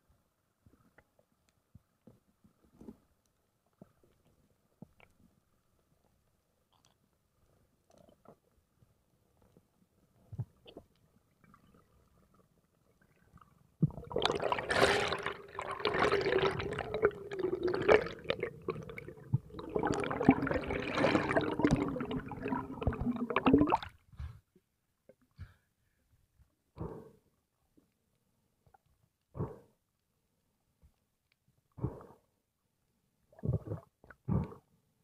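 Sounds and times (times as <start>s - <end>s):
underwater bubbling and gurgling: 10.2s - 24.0s, 33.3s - 34.6s.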